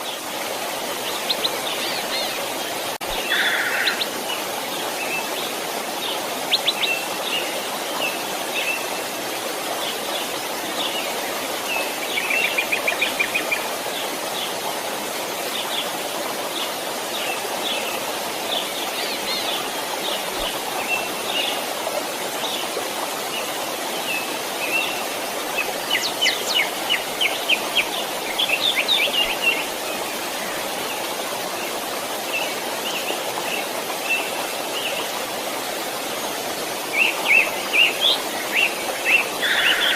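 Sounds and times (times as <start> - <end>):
small stream flowing: 0.0 - 39.9
birds chirping: 36.9 - 39.9.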